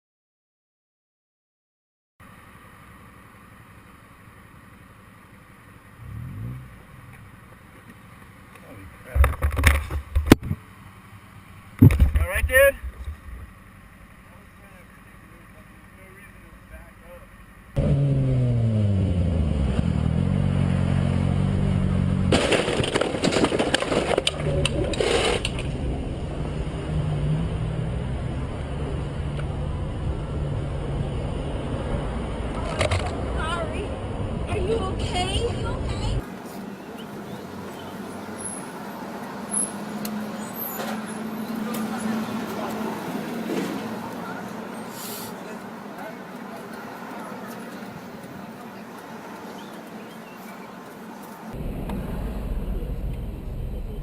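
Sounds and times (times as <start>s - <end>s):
vehicle road noise: 2.2s - 54.0s
engine humming and revving: 2.3s - 12.1s, 17.4s - 23.3s, 24.0s - 54.0s
loud collision crunching: 22.1s - 26.0s.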